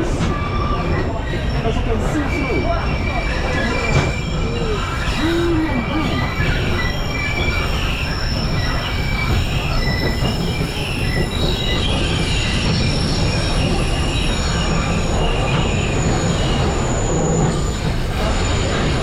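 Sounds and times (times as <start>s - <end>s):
train cars rumbling: 0.0s - 19.0s
wheels squealing on rails: 0.0s - 19.0s.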